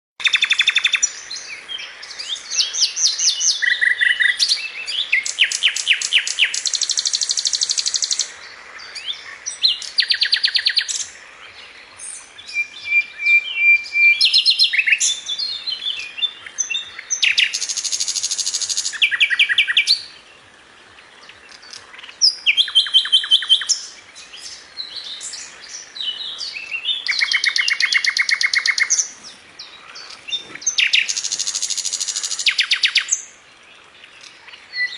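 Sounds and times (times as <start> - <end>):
songbird singing trills: 0.2 - 34.9.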